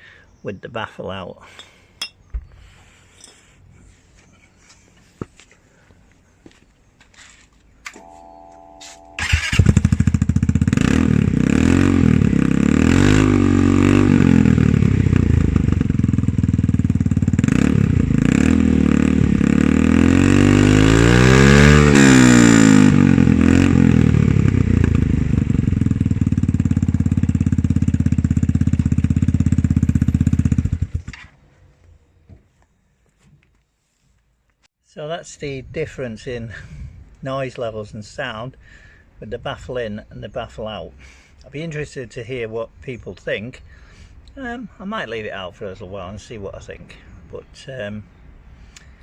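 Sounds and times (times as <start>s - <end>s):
scooter engine revving: 9.0s - 31.1s.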